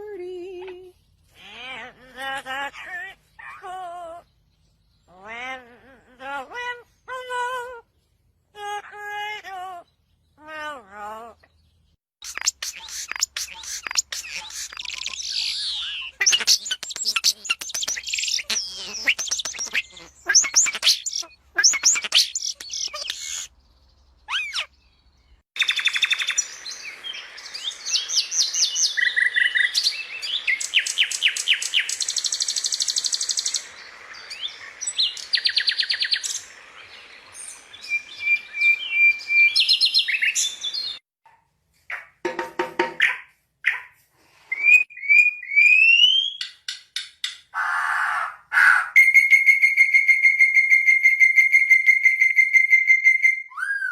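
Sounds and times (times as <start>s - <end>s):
nightingale singing: 11.2s - 41.0s, 44.6s - 46.8s.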